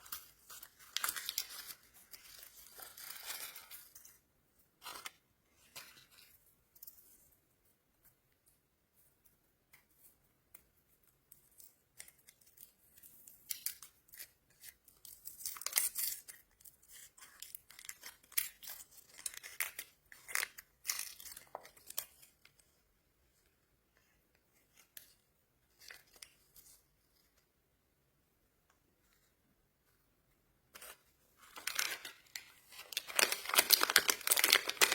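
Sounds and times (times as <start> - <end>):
plastic wrapper tearing and crinkling: 0.0 - 4.0, 13.3 - 22.4, 30.8 - 34.9.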